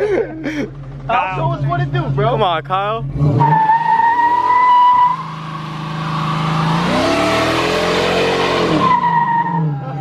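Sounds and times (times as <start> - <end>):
car engine revving hard: 3.0 - 9.8
tyres screeching: 3.2 - 10.0.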